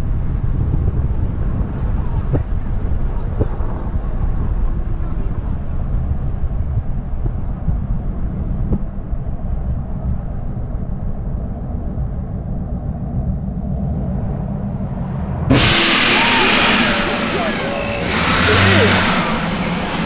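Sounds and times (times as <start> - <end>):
loud hissing: 15.5 - 20.0
vehicle engine and road rumble: 15.5 - 20.0.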